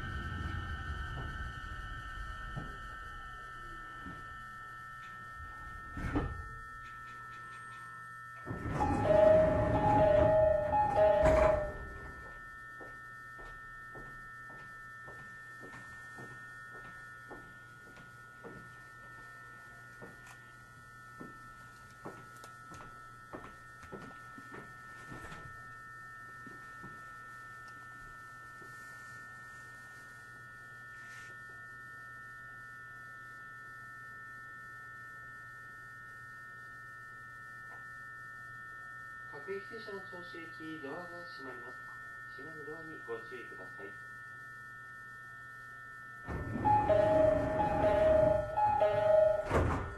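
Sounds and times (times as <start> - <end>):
faint high electrical whine: 0.0 - 49.9
low electrical hum: 0.0 - 49.9.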